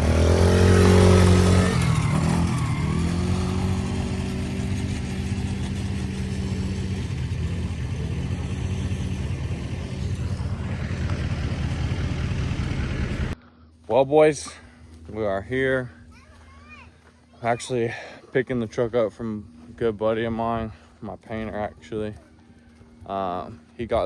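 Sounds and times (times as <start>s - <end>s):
vehicle engine running: 0.0s - 13.9s.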